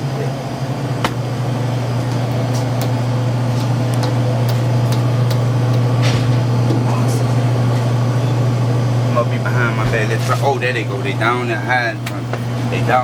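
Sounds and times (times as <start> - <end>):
car cabin drone: 0.0 - 10.2.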